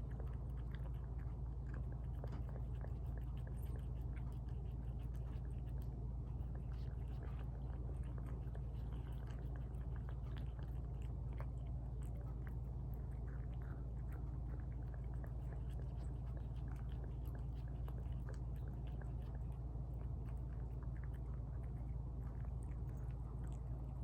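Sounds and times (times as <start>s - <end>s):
cats chewing wet food: 0.0s - 24.0s
constant low hum: 0.0s - 24.0s.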